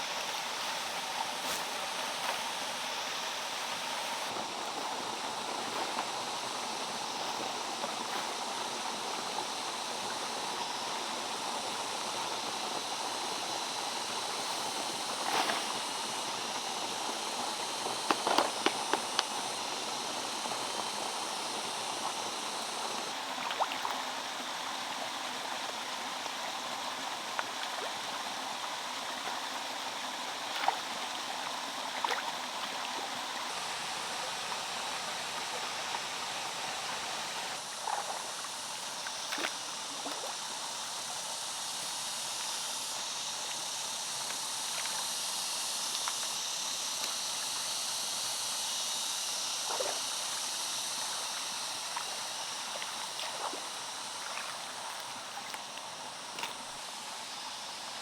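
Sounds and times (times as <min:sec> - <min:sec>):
water flowing: 0:48.4 - 0:58.0.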